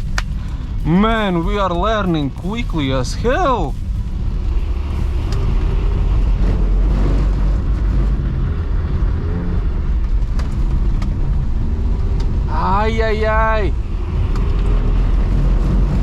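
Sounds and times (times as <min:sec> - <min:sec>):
car engine revving: 0:00.0 - 0:16.0
low road rumble: 0:00.0 - 0:16.0.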